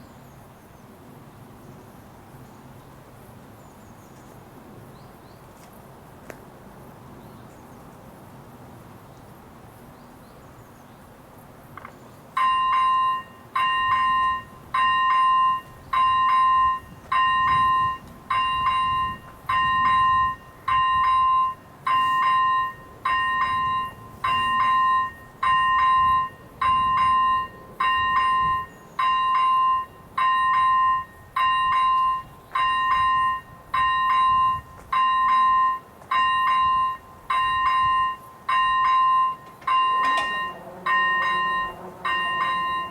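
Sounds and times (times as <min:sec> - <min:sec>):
electronic level crossing bell: 0:12.4 - 0:42.9.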